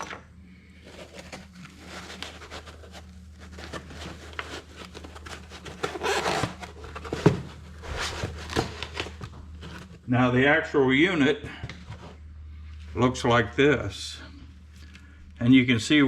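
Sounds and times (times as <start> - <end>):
packaging rustling and scraping: 0.0 - 10.1
steady low hum: 0.0 - 16.0.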